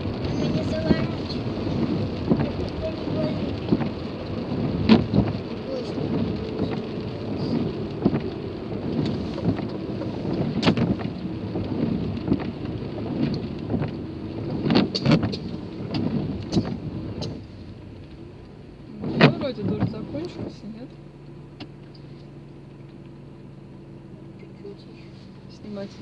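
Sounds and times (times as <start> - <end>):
rain pattering on a car: 0.0 - 26.0.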